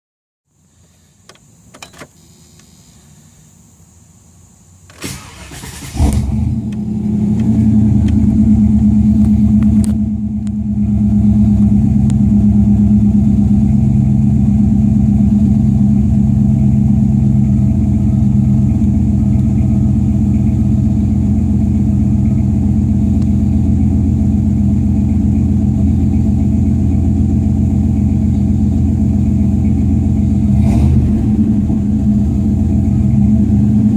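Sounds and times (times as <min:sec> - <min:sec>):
engine idling: 0:00.5 - 0:33.9
engine cranking and starting: 0:04.9 - 0:10.0.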